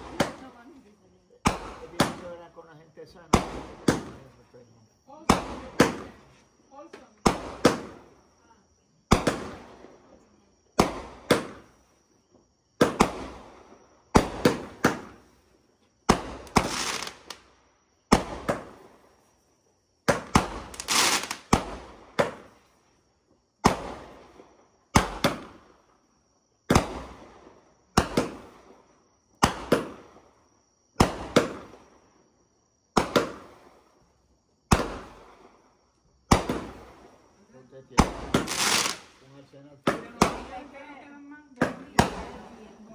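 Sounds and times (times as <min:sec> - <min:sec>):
fireworks bangs with echoing tail: 0:00.0 - 0:00.8, 0:01.4 - 0:04.4, 0:05.1 - 0:06.3, 0:07.1 - 0:08.2, 0:09.1 - 0:11.9, 0:12.8 - 0:15.4, 0:16.0 - 0:17.5, 0:18.1 - 0:19.2, 0:20.0 - 0:22.6, 0:23.6 - 0:25.9, 0:26.7 - 0:32.1, 0:32.9 - 0:34.0, 0:34.7 - 0:37.3, 0:37.9 - 0:40.8, 0:41.6 - 0:42.7
fireworks crackling: 0:00.0 - 0:08.2, 0:09.1 - 0:12.0, 0:12.8 - 0:26.0, 0:26.7 - 0:30.4, 0:31.0 - 0:32.1, 0:32.9 - 0:42.9.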